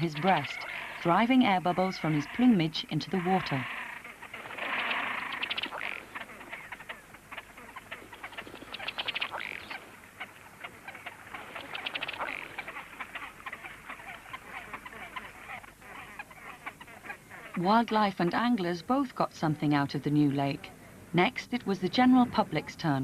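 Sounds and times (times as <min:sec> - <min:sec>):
duck croak: 0:00.0 - 0:17.7.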